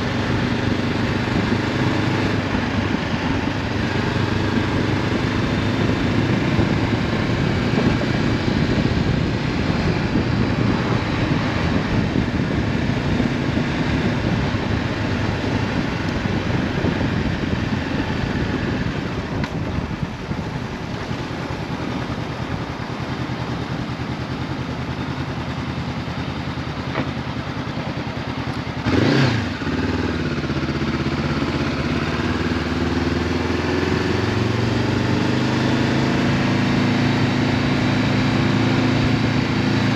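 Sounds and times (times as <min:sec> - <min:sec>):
engine revving: 0:00.0 - 0:19.6, 0:28.8 - 0:39.9
motorcycle engine running: 0:00.0 - 0:39.9.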